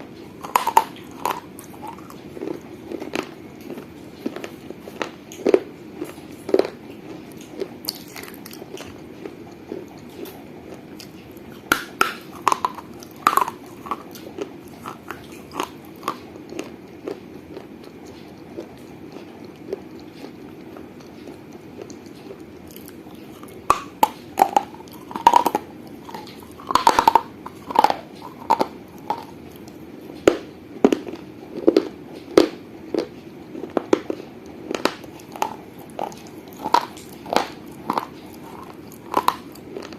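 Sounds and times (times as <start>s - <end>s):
person chewing crunchy clay: 0.0s - 39.9s.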